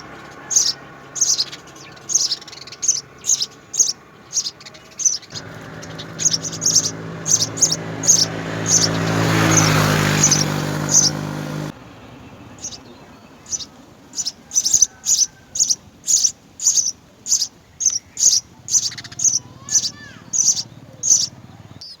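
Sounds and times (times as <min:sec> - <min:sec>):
sparrows chirping: 0:00.0 - 0:22.0
low hum with rush: 0:05.4 - 0:13.0.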